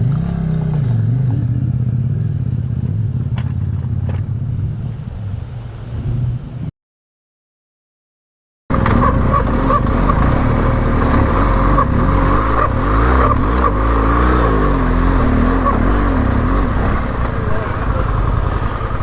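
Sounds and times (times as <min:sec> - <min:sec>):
motorcycle engine running: 0:00.0 - 0:04.6, 0:08.7 - 0:19.0.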